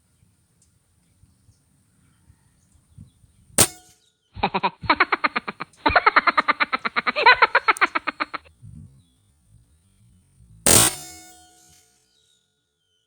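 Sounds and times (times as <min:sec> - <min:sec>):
rapid knocking bird call: 0:04.4 - 0:08.4.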